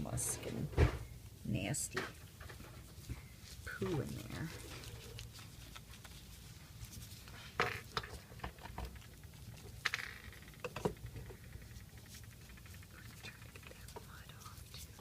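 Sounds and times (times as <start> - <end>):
netting rustle: 2.6 - 8.4.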